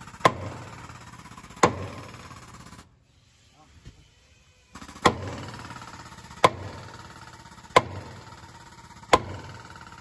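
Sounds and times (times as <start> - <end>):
sledgehammer striking metal: 0.2 - 0.9, 1.6 - 2.3, 6.4 - 6.9, 7.7 - 8.3, 9.0 - 9.6.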